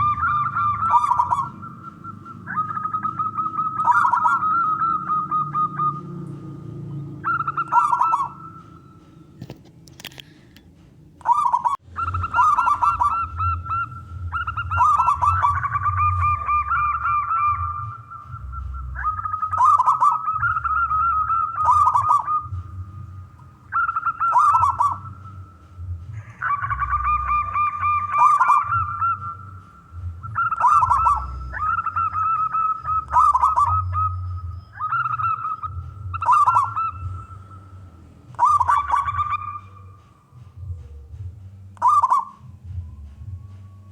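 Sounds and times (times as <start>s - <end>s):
dove cooing: 0.0s - 10.2s, 11.2s - 43.9s
low background rumble: 0.0s - 43.9s.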